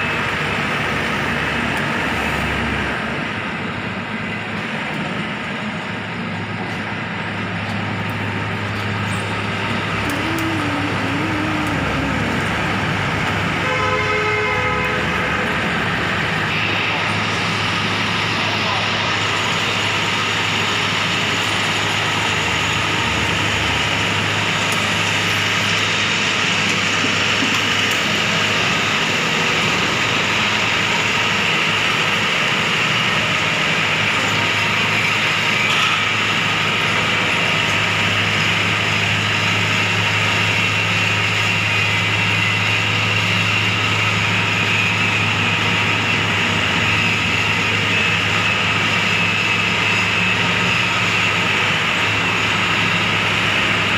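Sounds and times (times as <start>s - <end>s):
diesel engine running: 0.0s - 53.9s
high-pitched whine: 0.0s - 53.9s.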